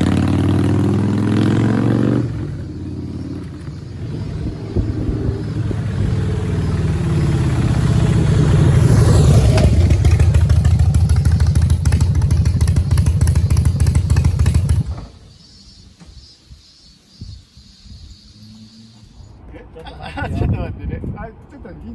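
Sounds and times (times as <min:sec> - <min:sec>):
motorcycle engine pulsing: 0:00.0 - 0:16.2.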